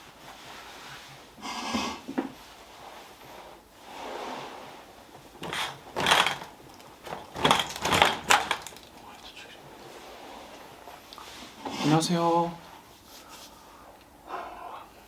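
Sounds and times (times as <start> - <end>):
objects scraping and knocking: 5.3 - 9.3.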